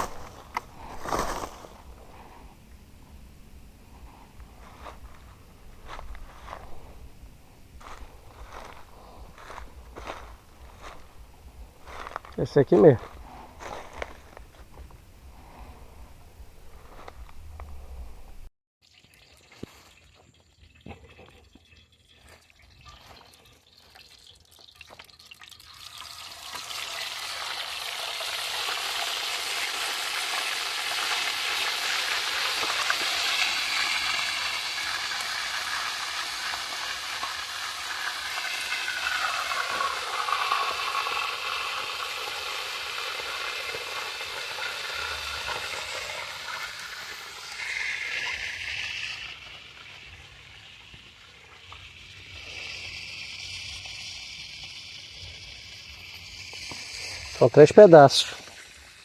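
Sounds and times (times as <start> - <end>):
food sizzling in hot oil: 22.2 - 59.0.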